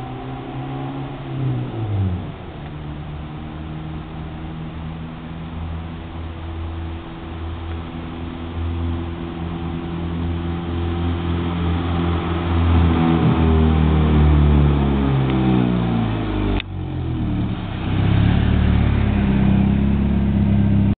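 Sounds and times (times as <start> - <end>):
car engine exhaust note: 0.0 - 20.9
steady lower drone: 0.0 - 20.9.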